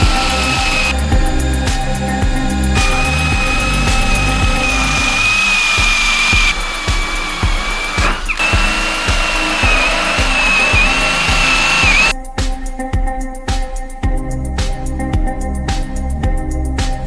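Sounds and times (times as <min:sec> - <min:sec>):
electric drill whining through wood: 0:00.0 - 0:12.1
background music with steady beat: 0:00.0 - 0:17.0.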